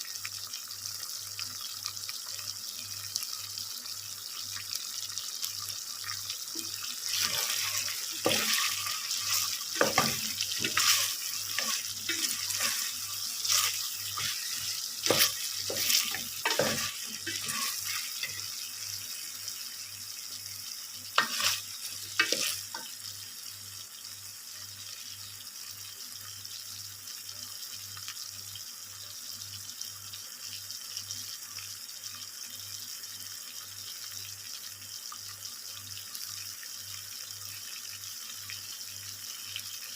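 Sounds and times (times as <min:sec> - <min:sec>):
food sizzling in a pan: 0:00.0 - 0:39.9
utensil scraping a pan: 0:06.6 - 0:18.6, 0:21.2 - 0:22.8.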